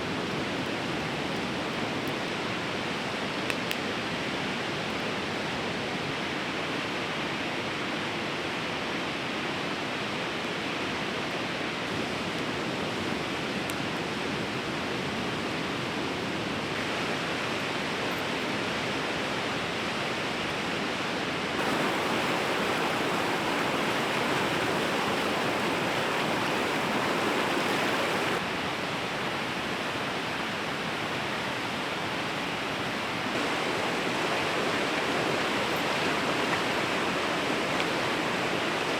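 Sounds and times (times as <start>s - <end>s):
river water rushing: 21.6s - 38.9s.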